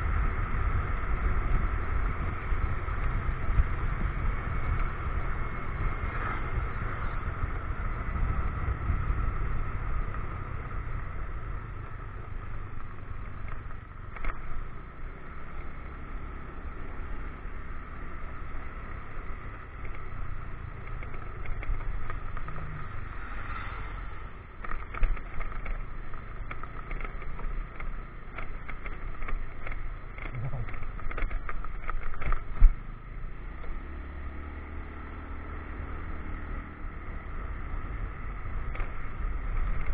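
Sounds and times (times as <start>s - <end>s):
motorcycle engine running: 0.0s - 39.9s
road and wind noise: 0.0s - 39.9s
knocks and rattles: 24.6s - 32.8s.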